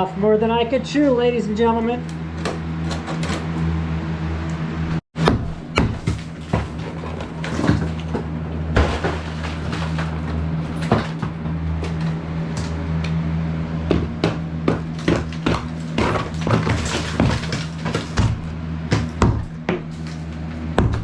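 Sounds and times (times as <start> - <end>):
steady low hum: 0.0 - 21.0
wall demolition knocks and scrapes: 2.4 - 3.6, 5.2 - 13.0, 13.8 - 21.0.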